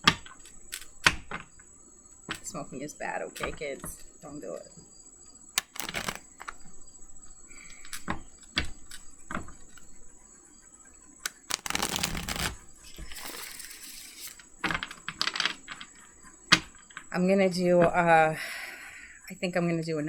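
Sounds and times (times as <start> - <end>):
cards snapping: 0.1 - 1.4, 5.6 - 6.6, 11.2 - 14.4
cards sliding during shuffle: 0.2 - 1.2, 5.6 - 6.6, 11.2 - 14.5.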